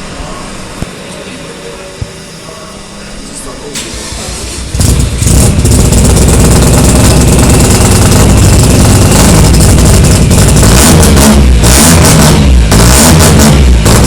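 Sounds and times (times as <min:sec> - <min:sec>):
rotary engine idling: 0:03.8 - 0:14.0.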